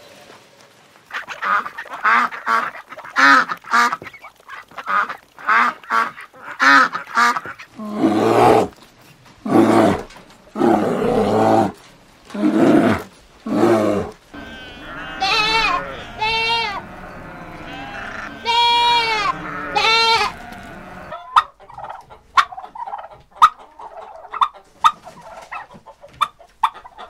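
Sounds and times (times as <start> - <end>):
ducks quacking: 1.0 - 7.9, 14.3 - 27.0.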